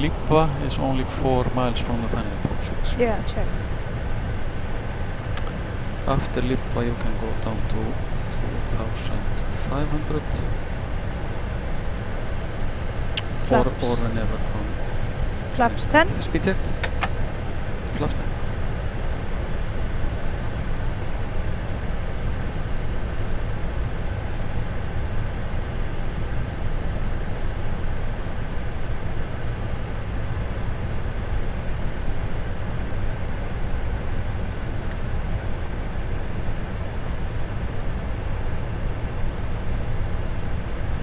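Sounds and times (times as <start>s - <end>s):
faint steady tones: 0.0s - 31.7s.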